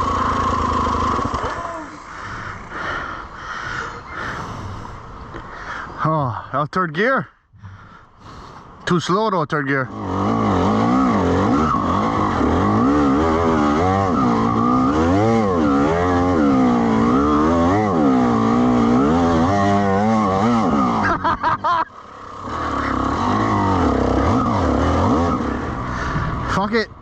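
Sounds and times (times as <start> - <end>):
dirt bike engine revving: 0.0 - 3.2, 9.7 - 26.7.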